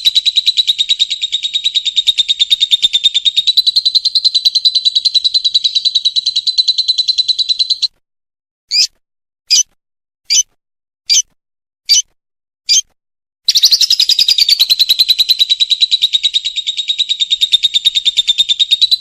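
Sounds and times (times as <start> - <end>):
bird rapid shrill chatter: 0.0 - 7.9, 8.7 - 9.7, 10.3 - 10.5, 11.1 - 11.3, 11.9 - 12.1, 12.7 - 12.9, 13.5 - 19.0
short bird chirp: 8.7 - 10.5, 11.1 - 14.7.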